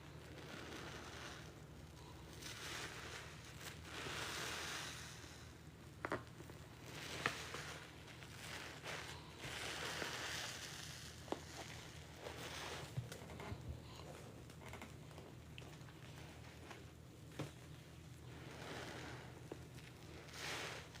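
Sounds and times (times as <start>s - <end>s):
wet sponge squishing: 0.0s - 21.0s.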